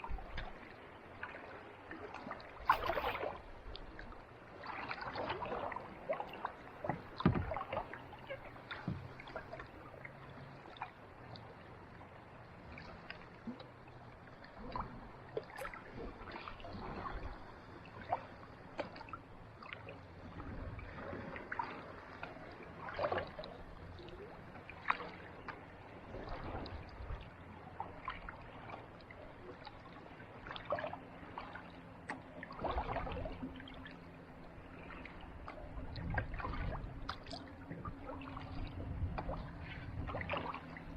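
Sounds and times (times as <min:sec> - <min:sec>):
kayak paddle splashing in water: 0:00.0 - 0:11.0, 0:14.4 - 0:40.9
water dripping from paddle: 0:04.6 - 0:11.5, 0:12.8 - 0:16.6.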